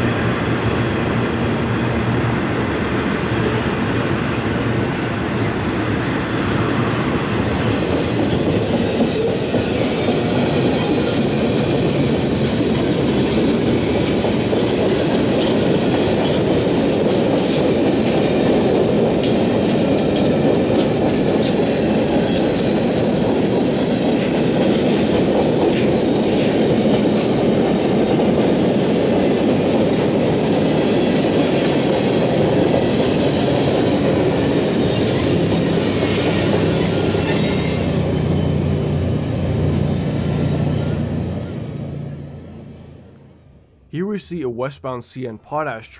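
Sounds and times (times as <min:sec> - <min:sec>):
train rumble: 0:00.0 - 0:44.0
freight train wheels clicking: 0:06.5 - 0:41.1.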